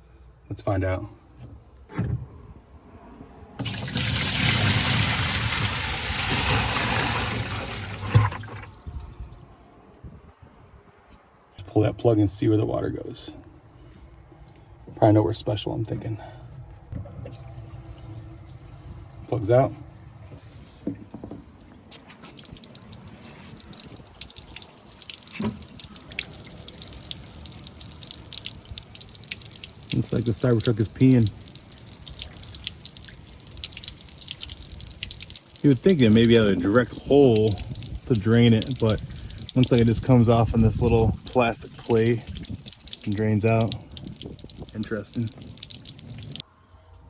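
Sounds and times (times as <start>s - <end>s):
water rushing out of a drain: 3.6s - 9.5s, 21.9s - 46.4s.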